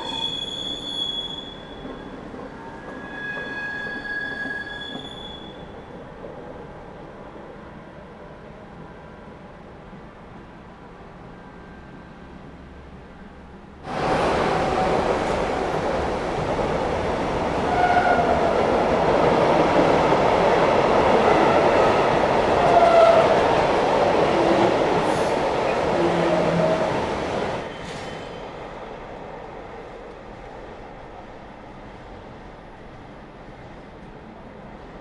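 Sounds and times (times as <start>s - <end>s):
wheel squeals: 0.0s - 5.7s
train passing: 5.6s - 35.0s.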